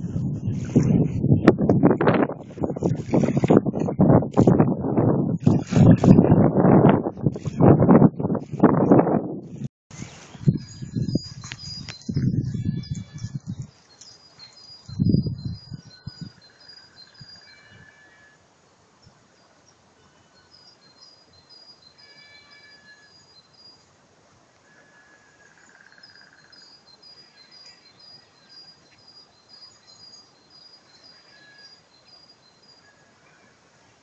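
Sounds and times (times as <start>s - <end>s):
faint songbirds singing: 10.0s - 23.9s, 24.7s - 33.6s.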